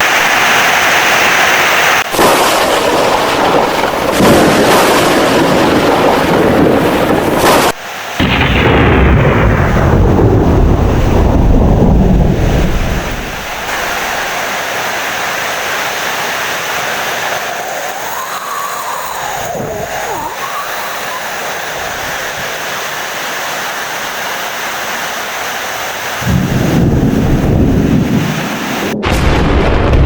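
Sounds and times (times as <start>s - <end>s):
heavy rain: 0.0s - 30.0s
loud thunder rumble: 2.1s - 14.4s, 26.2s - 30.0s.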